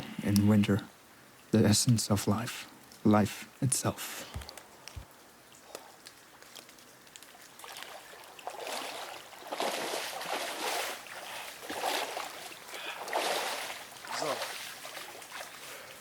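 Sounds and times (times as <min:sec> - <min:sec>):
water sloshing and splashing: 0:06.1 - 0:16.0.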